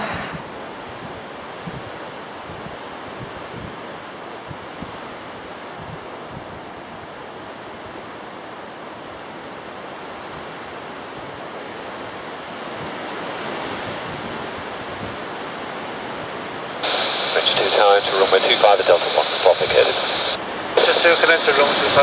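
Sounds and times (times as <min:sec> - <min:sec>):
strong wind rushing: 0:00.0 - 0:01.9
wind buffeting microphone: 0:00.0 - 0:05.0, 0:05.6 - 0:07.1, 0:12.7 - 0:15.3.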